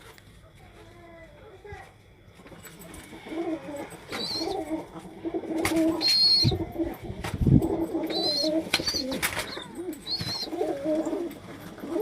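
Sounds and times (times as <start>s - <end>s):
pigeons cooing: 2.9s - 12.0s
small bird chirps: 4.2s - 4.6s, 6.0s - 6.6s, 8.1s - 10.6s.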